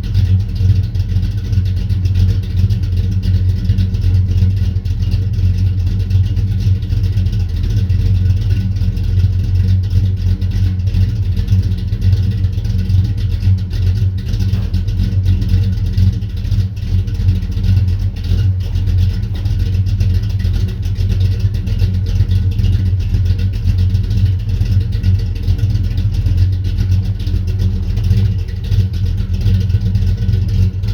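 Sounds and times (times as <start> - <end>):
car engine idling: 0.0 - 30.9.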